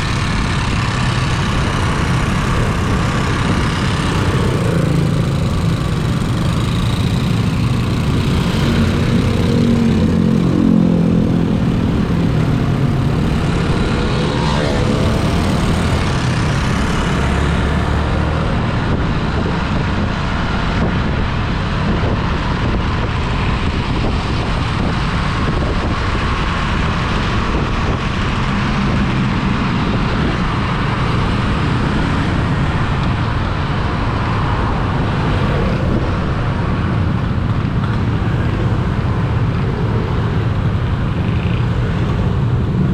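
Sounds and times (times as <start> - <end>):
engine notes: 0.0 - 18.3
road and traffic noise: 0.0 - 42.9.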